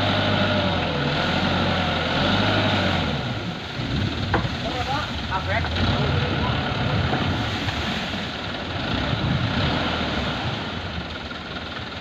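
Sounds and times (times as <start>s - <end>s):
dump truck engine rumble: 0.0s - 12.0s.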